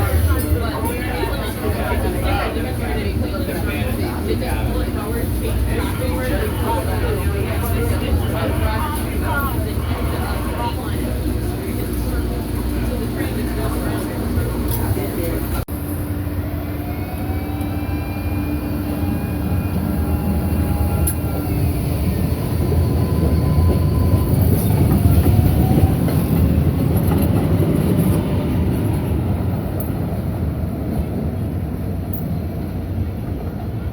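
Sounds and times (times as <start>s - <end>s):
train wheel and track rumble: 0.0s - 33.9s
train whining tones: 15.7s - 28.2s.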